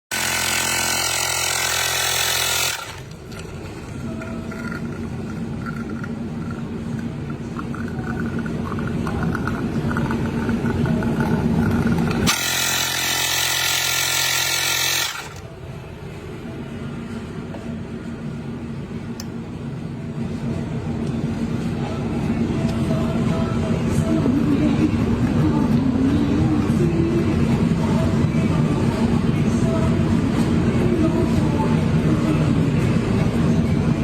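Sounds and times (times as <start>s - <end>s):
espresso machine hissing: 0.1s - 3.1s
rattling mechanical hum: 0.1s - 34.0s.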